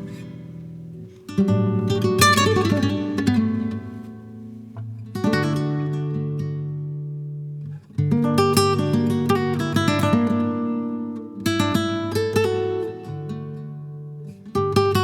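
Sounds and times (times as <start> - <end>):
acoustic guitar strumming chords: 0.0 - 7.0.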